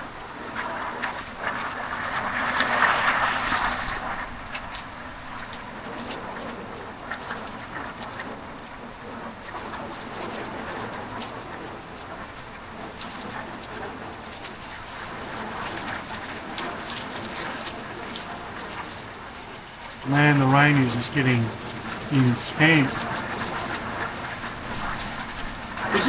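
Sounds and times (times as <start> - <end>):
raindrops ticking on surfaces: 4.6 - 26.0
heavy rain: 15.0 - 26.0.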